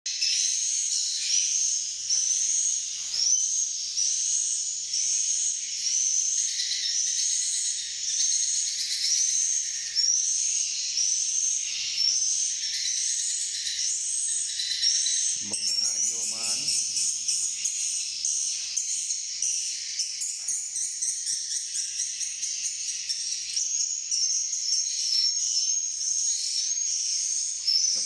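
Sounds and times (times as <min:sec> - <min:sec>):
swiftlets twittering: 0:15.4 - 0:17.0.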